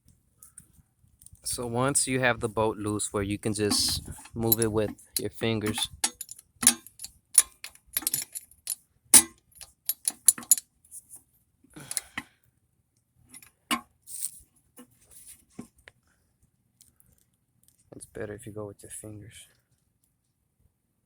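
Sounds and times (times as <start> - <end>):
socket wrench clicking: 3.7 - 10.6.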